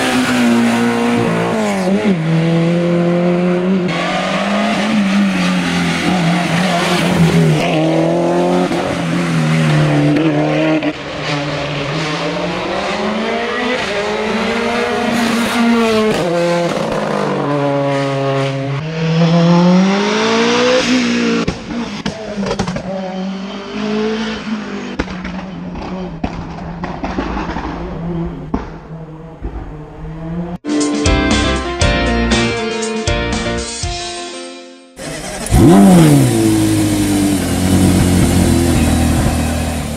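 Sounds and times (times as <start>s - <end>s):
racing car engine at high revs: 0.0s - 30.6s, 35.0s - 39.9s
engine crackles: 35.0s - 39.9s.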